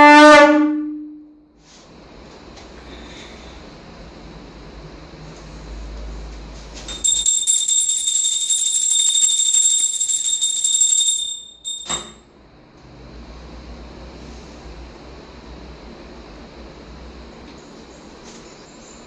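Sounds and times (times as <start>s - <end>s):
hand bell ringing: 6.9s - 12.2s.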